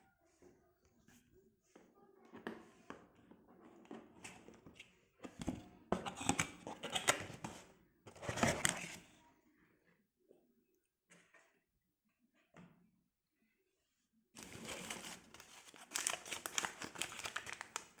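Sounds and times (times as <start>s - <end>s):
rustling and crinkling: 14.4s - 18.0s.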